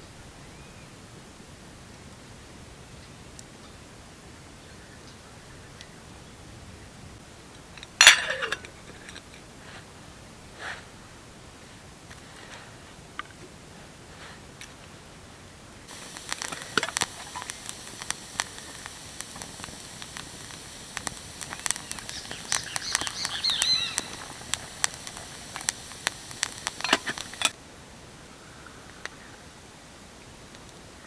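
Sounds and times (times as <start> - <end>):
steady hiss: 15.7 - 27.6
campfire crackling and popping: 15.8 - 27.6
short whistling tones: 15.9 - 27.5.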